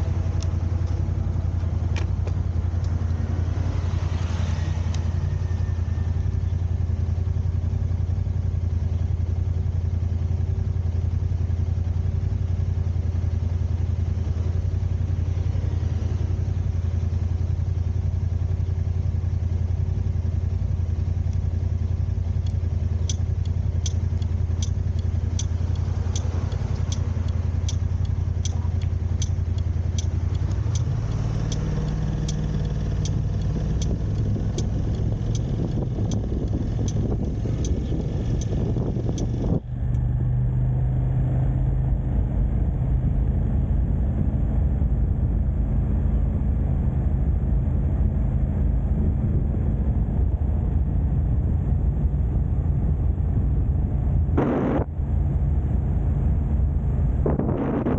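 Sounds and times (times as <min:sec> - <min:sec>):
turn signal ticking: 0:00.0 - 0:09.1, 0:20.3 - 0:40.1
car engine and road drone: 0:00.0 - 0:57.9.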